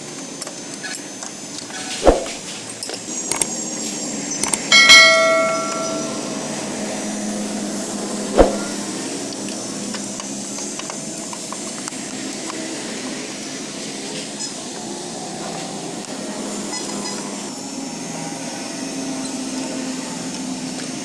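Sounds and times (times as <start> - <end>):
steady background noise: 0.0 - 21.0
metal clank ringing: 4.7 - 6.3.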